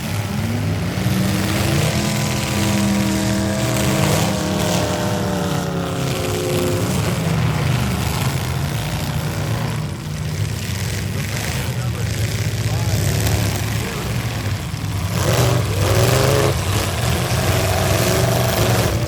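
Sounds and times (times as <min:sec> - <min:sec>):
car engines running hard: 0:00.0 - 0:19.0
dense low rumble: 0:00.0 - 0:19.0.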